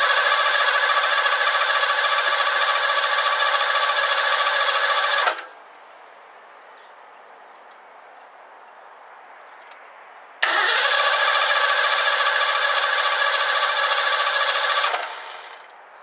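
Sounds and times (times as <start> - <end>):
starter motor cranking engine: 0.0 - 5.5, 10.4 - 15.7.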